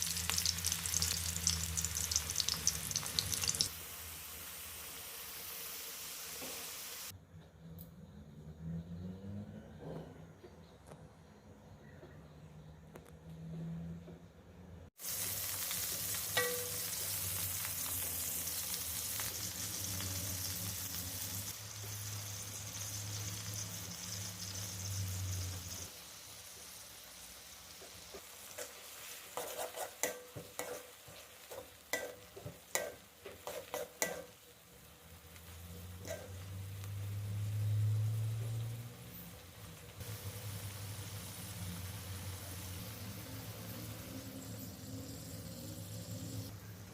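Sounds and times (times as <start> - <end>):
food sizzling in a pan: 0.0 - 7.2, 15.0 - 46.9
spatula scraping against pan: 28.5 - 34.4, 36.0 - 36.5.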